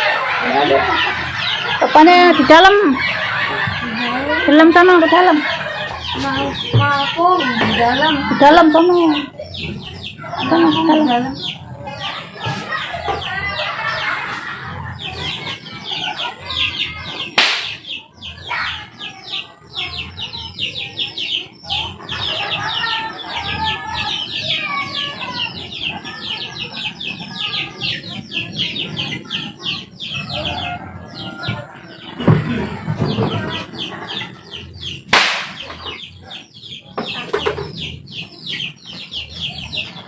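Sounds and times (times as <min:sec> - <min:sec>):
birds chirping rapidly: 0:00.0 - 0:40.0
sharp knock: 0:17.4 - 0:17.8, 0:35.1 - 0:35.6.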